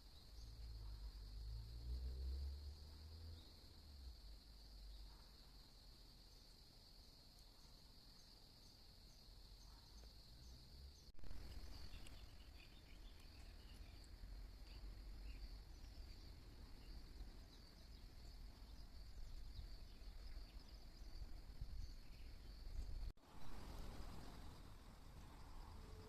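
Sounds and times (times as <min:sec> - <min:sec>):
insects trilling: 0:00.0 - 0:26.0
small chirps: 0:11.1 - 0:24.4.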